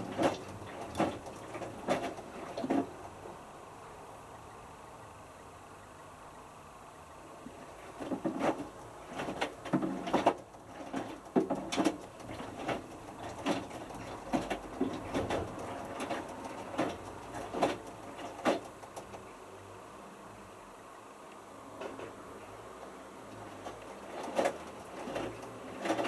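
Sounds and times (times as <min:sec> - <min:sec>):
washing machine drum tumbling: 0:00.0 - 0:03.0, 0:07.5 - 0:19.1, 0:23.4 - 0:26.0
clothes and water sloshing: 0:00.0 - 0:03.2, 0:07.1 - 0:19.2, 0:22.8 - 0:26.0.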